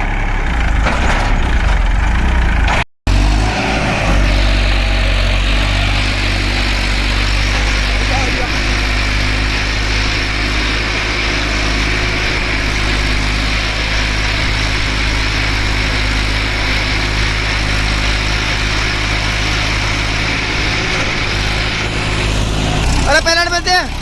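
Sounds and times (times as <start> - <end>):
tractor diesel engine straining: 0.0 - 24.0.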